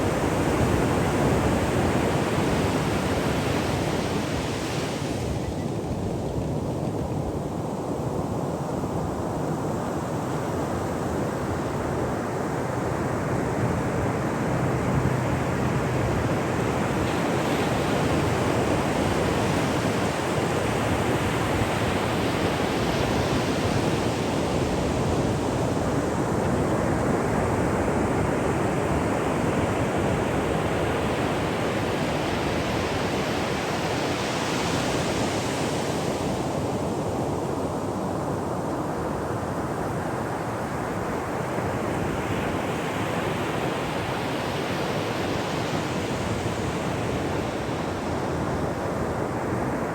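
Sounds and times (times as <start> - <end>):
ocean waves breaking on shore: 0.0 - 49.9.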